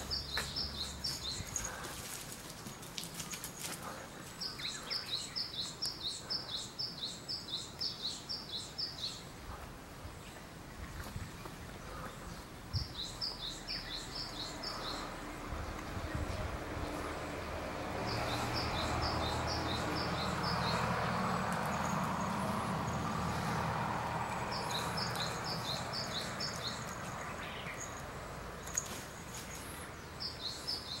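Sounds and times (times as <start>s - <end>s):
small bird chirping: 18.1s - 31.0s.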